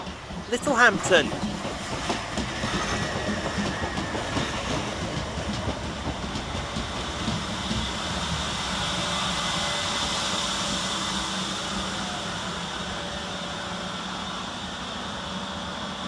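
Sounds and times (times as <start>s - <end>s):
train wheels clicking over rail joints: 0.0s - 9.4s.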